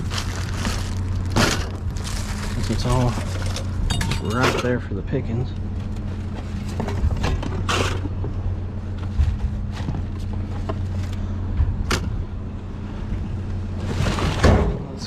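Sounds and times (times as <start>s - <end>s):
vehicle engine idling: 0.0s - 13.9s
scrap aluminum clanking: 1.3s - 4.9s.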